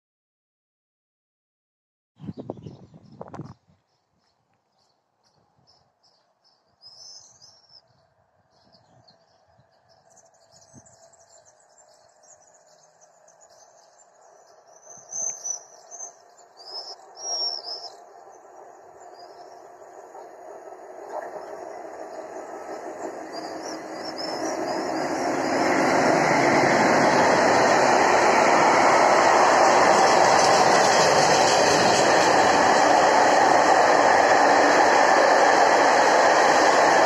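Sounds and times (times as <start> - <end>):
small birds chirping: 2.2 - 20.5, 21.2 - 25.9
approaching train rumble: 6.2 - 37.0.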